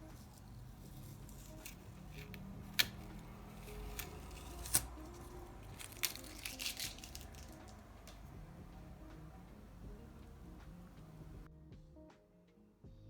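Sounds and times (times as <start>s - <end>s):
art supplies clicking: 0.2s - 8.3s.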